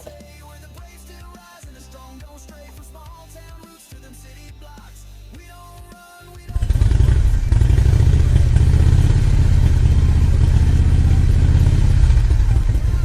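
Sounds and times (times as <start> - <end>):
power saw cutting wood: 6.5 - 13.0.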